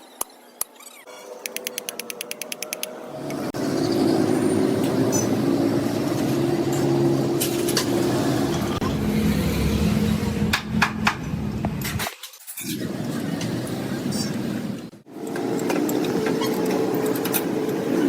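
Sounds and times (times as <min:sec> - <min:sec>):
sharp clicks: 0:01.4 - 0:03.0.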